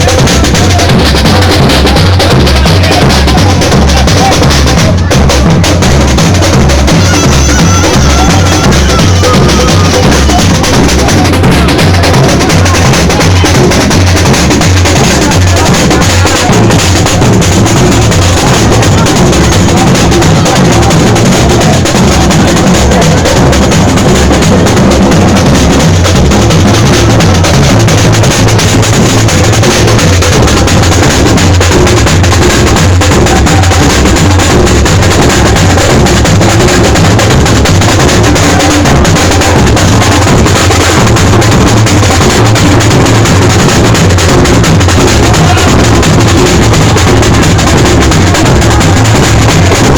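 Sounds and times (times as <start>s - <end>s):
bass drum pulse: 0.0s - 49.9s
percussion band drumming: 0.0s - 49.9s.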